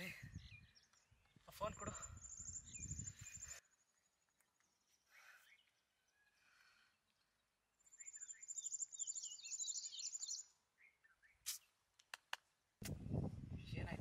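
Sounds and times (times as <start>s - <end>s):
songbird singing trilled phrase: 0.0s - 3.6s, 8.0s - 11.4s.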